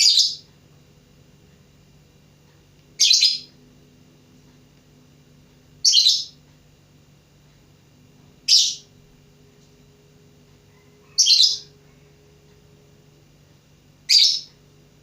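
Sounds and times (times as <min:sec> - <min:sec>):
lovebird chirps: 0:03.0 - 0:03.5, 0:05.8 - 0:06.4, 0:08.5 - 0:08.9, 0:11.1 - 0:11.8, 0:14.1 - 0:14.5.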